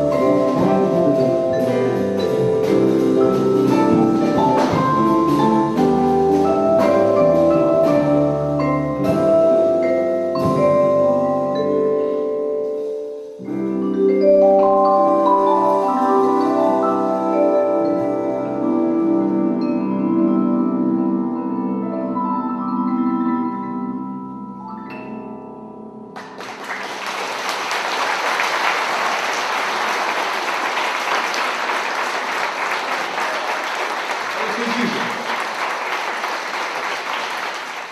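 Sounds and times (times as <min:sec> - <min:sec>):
jazz ensemble: 0:00.0 - 0:22.0
vibraphone chords: 0:00.0 - 0:26.3
audience applause: 0:26.2 - 0:37.9.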